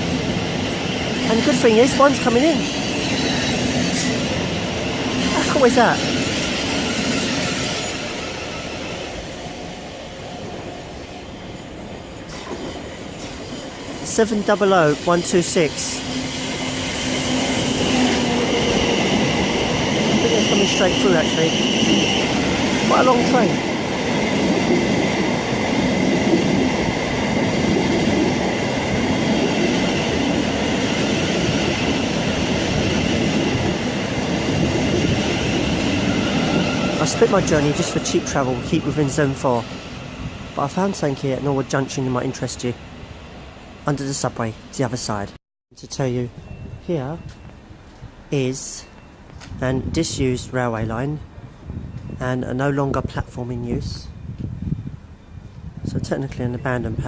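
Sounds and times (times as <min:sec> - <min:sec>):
electric train running on tracks: 0:00.0 - 0:45.3.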